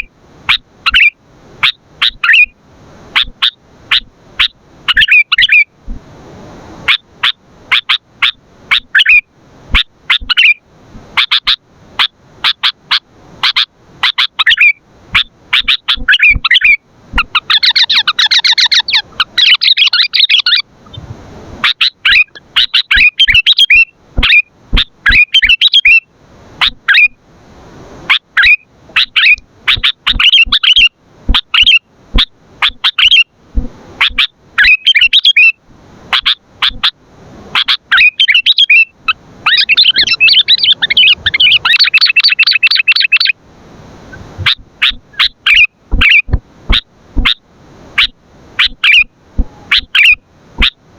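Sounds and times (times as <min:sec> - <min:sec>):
bird chirping and whistling: 0:00.9 - 0:02.5, 0:03.2 - 0:05.6, 0:08.7 - 0:09.2, 0:09.8 - 0:10.6, 0:13.4 - 0:20.6, 0:21.6 - 0:26.0, 0:26.6 - 0:27.1, 0:28.4 - 0:33.2, 0:34.0 - 0:35.6, 0:37.6 - 0:43.3, 0:44.4 - 0:47.4, 0:48.0 - 0:50.8.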